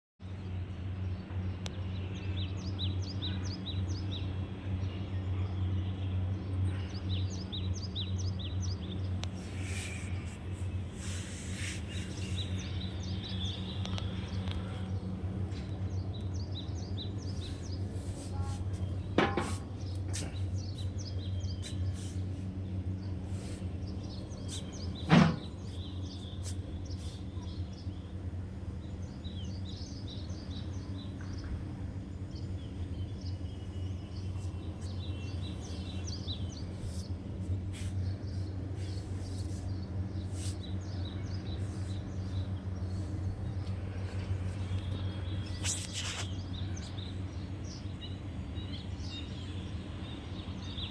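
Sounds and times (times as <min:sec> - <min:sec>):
small birds chirping: 0:01.1 - 0:50.9.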